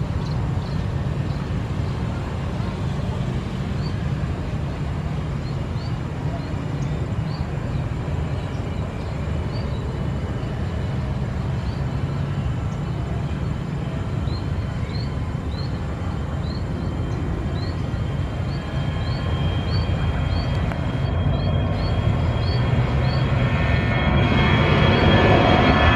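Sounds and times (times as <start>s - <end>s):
jet engines rumbling: 0.0s - 25.9s
faint high chirp: 14.2s - 25.9s.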